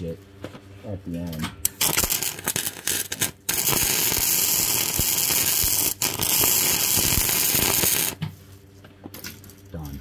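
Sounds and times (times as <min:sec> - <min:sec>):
welding arc hissing: 0:01.7 - 0:08.2.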